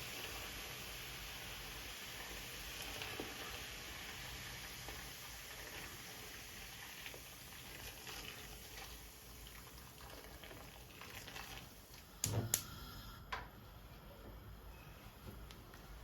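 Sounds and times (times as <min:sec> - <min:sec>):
water bubbling in a pot: 0:00.0 - 0:12.2.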